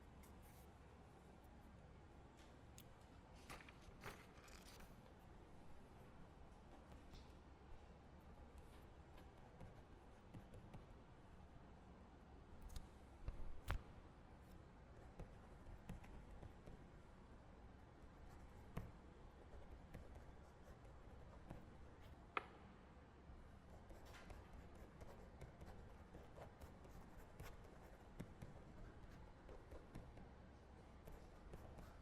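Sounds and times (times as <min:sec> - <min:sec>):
low room hum: 0:00.0 - 0:32.0
soft desk clicks and taps: 0:22.0 - 0:22.6.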